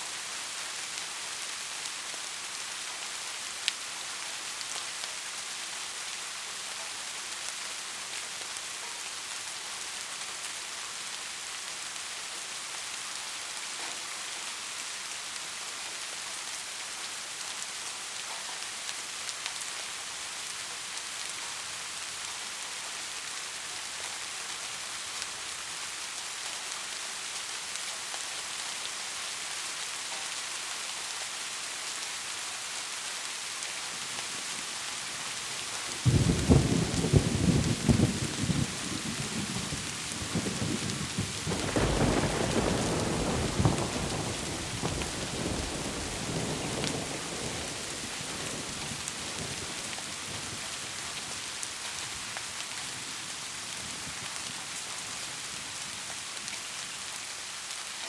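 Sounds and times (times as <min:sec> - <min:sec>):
steady rain hissing: 0:00.0 - 0:58.0
thunderclap rolling rumble: 0:36.0 - 0:47.4.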